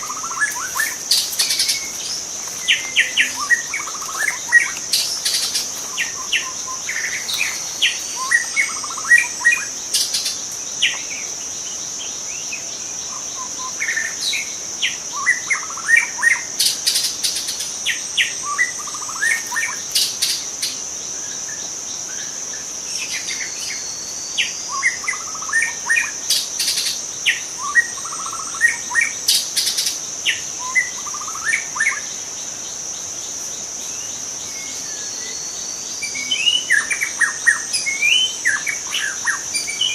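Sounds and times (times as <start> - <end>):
high-pitched insect drone: 0.0 - 39.9
bird singing chirps and whistles: 34.5 - 39.9.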